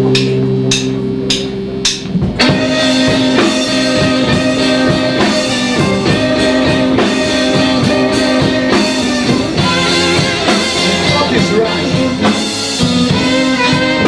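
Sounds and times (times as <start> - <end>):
drums: 0.0 - 14.0
electric guitar: 0.0 - 14.0.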